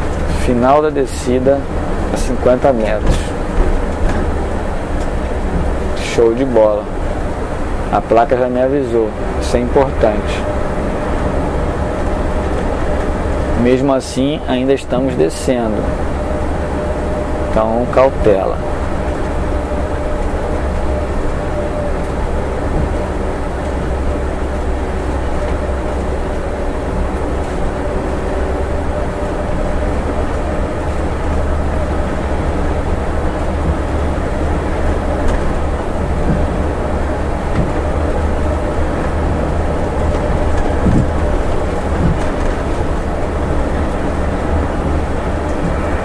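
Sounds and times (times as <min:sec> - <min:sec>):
bus diesel engine droning: 0:00.0 - 0:46.0
road noise: 0:00.0 - 0:46.0.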